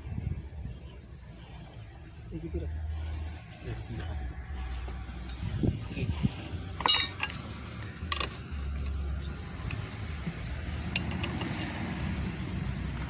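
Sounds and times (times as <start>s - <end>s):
low engine rumble: 0.0s - 13.0s
metal-on-metal clinks: 6.8s - 9.8s.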